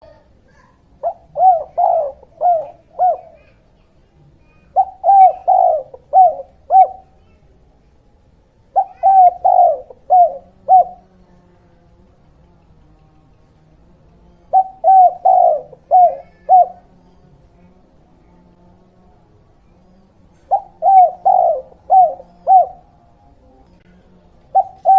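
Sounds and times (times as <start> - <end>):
dove cooing: 0.0 - 7.6, 8.7 - 11.2, 13.8 - 17.8, 19.6 - 24.9.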